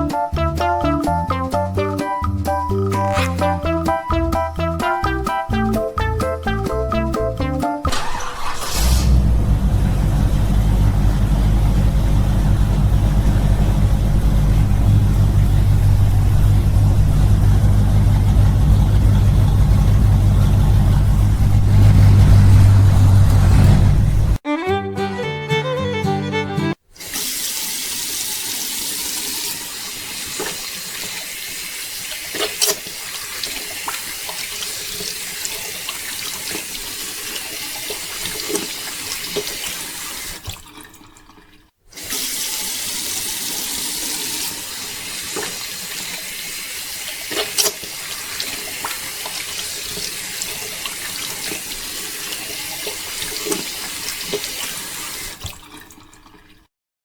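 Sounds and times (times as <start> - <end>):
running water: 26.9 - 56.7
water splashes: 29.6 - 43.8, 44.4 - 56.7.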